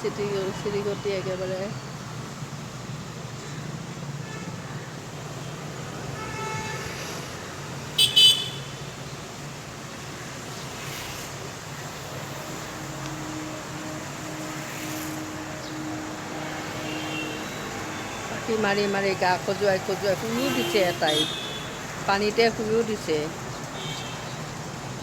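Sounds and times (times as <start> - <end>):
road traffic hum: 0.0 - 25.0
vehicle horn toots: 4.2 - 4.8, 6.1 - 7.0, 8.0 - 8.8, 12.1 - 21.9, 23.8 - 24.3.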